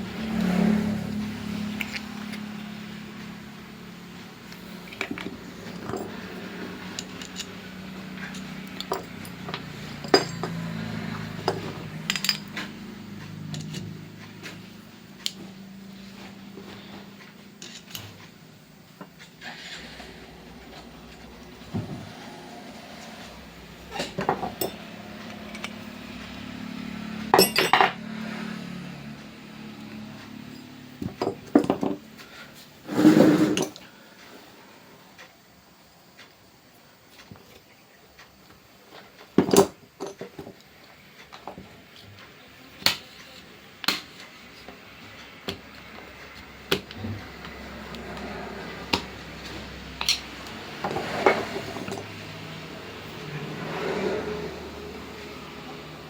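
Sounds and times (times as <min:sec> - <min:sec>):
metal tools clinking and knocking: 0:04.9 - 0:13.9, 0:23.9 - 0:24.8, 0:27.3 - 0:28.0.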